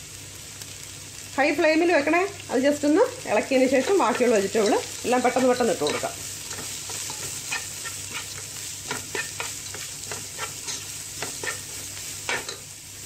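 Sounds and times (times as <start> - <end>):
vegetables sizzling in hot oil: 0.0 - 13.0
spatula scraping and tapping a pan: 3.8 - 12.7.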